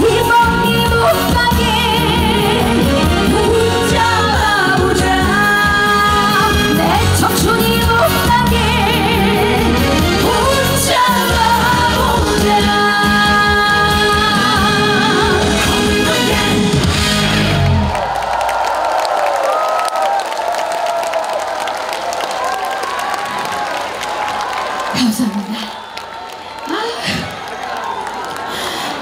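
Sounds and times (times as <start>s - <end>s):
woman singing with vibrato: 0.0s - 16.8s
backing band playing: 0.0s - 18.1s.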